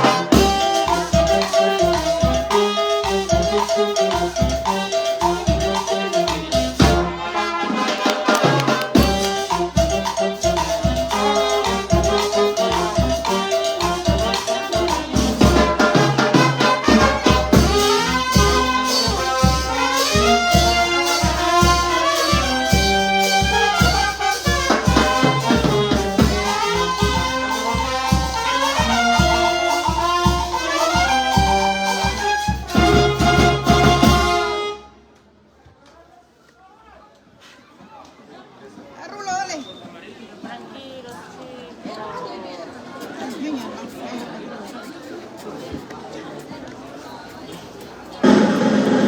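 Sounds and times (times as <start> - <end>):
steady drum beat: 0.0 - 34.7
trumpets playing melody: 0.0 - 35.1
brass band music: 0.0 - 35.2, 48.2 - 49.0.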